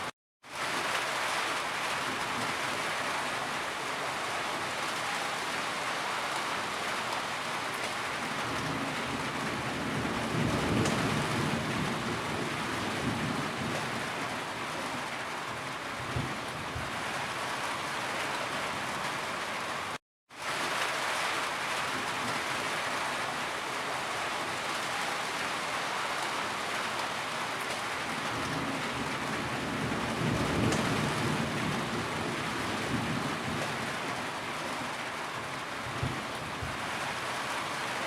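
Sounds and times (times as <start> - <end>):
heavy rain: 0.0 - 38.0.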